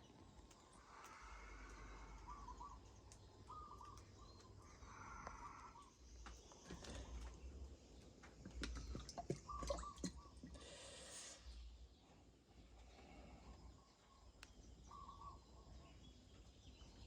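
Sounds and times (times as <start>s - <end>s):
faint bird calls: 0.5s - 7.4s, 8.7s - 11.8s, 12.8s - 16.2s.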